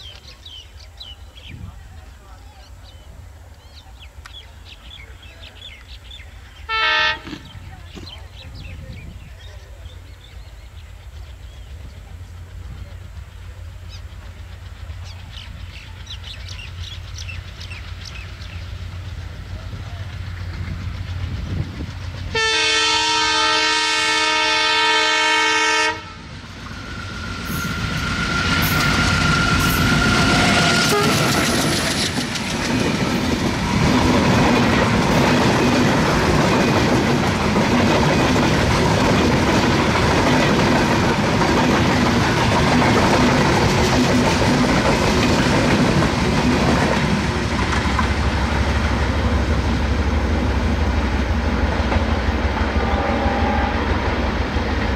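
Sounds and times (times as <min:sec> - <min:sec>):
train rumble: 0:00.0 - 0:54.9
locomotive horn: 0:06.7 - 0:07.5, 0:22.3 - 0:26.3, 0:27.4 - 0:31.6, 0:52.6 - 0:54.1.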